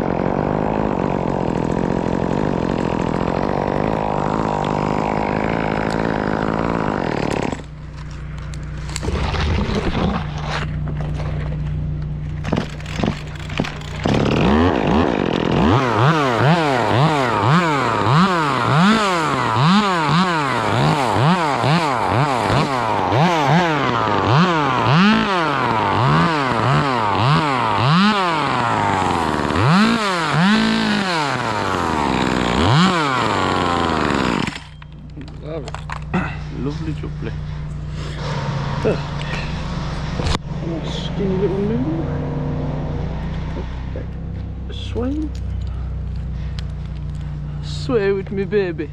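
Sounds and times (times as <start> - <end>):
chainsaw revving and idling: 0.0 - 48.9.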